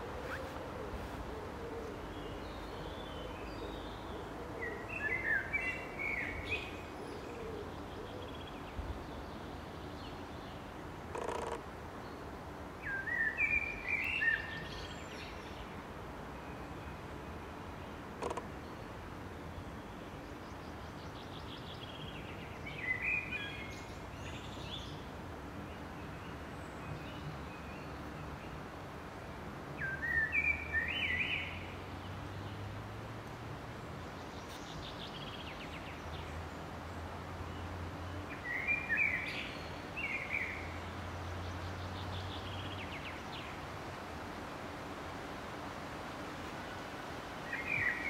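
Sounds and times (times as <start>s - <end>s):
songbird singing: 0.0s - 44.5s, 45.1s - 48.0s.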